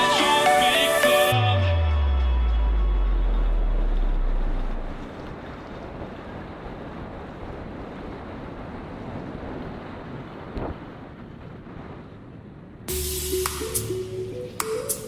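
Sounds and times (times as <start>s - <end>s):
deep bass note from music: 1.3s - 5.1s, 12.9s - 14.6s.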